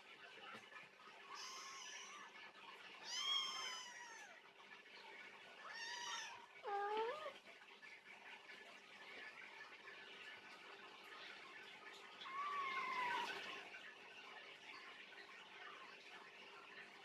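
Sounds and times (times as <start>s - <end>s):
cat meowing: 1.4s - 2.2s, 3.1s - 4.4s, 5.7s - 7.4s, 12.3s - 13.3s.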